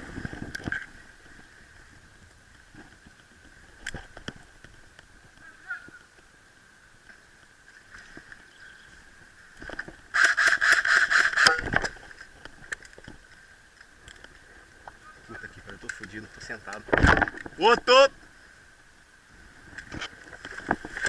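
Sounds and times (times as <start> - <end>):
scattered clicks: 15.7 - 17.5.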